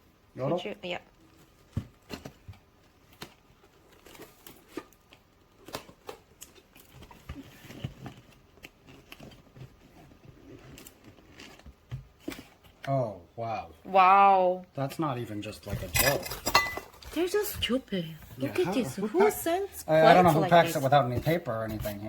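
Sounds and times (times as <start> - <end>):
packaging rustling: 1.2 - 12.8.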